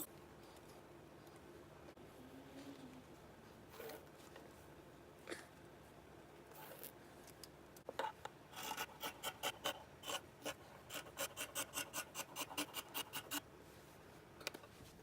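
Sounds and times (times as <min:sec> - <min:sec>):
scratchy rasping strokes: 0:08.5 - 0:13.4.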